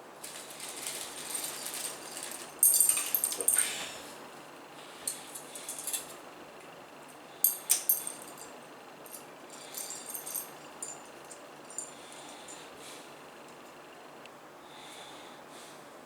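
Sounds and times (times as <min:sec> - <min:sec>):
hardware parts clicking and rattling: 0:00.2 - 0:03.9, 0:07.4 - 0:12.0.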